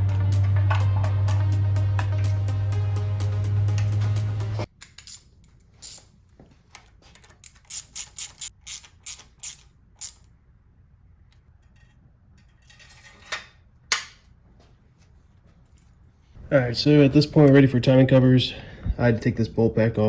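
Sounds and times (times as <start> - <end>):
ratchet wrench clicking: 7.4 - 10.3.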